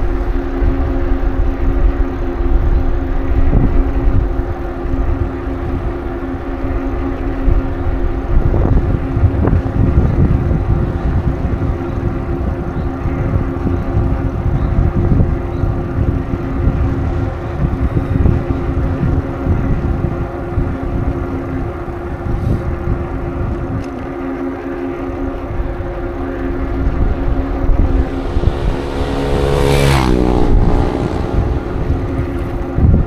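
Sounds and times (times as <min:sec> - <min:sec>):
wind buffeting microphone: 0:25.4 - 0:33.0
steady low hum: 0:27.0 - 0:32.8.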